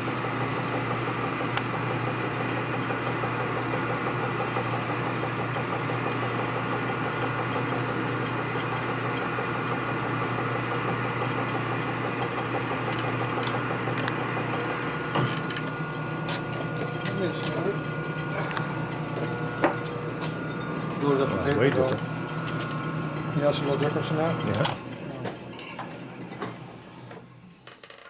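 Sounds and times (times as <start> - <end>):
honing machine grinding hiss: 0.0 - 12.8.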